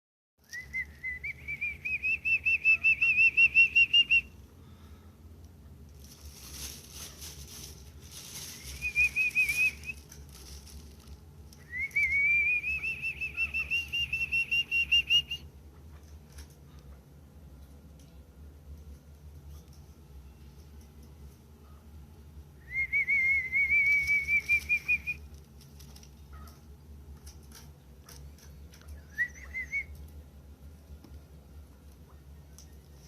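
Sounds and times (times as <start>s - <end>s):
brief rustling: 6.0s - 11.9s.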